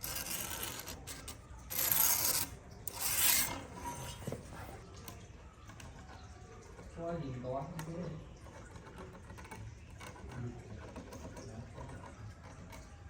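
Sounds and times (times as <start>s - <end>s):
tool rasping over wood: 0.0s - 4.7s.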